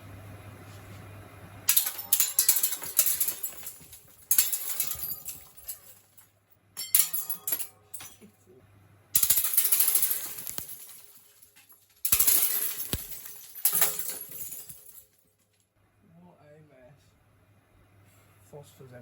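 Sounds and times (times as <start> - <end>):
ceiling fan hum: 0.0 - 15.1, 15.8 - 19.0
glass breaking crash: 1.7 - 6.2, 6.8 - 8.3, 9.2 - 15.1
glass fragments clattering: 1.7 - 8.4, 9.2 - 15.3.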